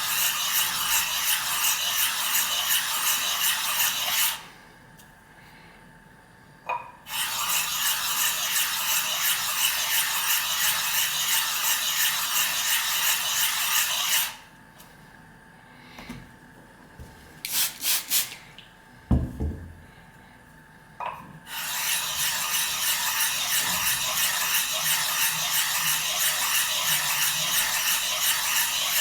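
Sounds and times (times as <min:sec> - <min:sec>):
whetstone rasping on lapping plate: 0:21.6 - 0:29.0.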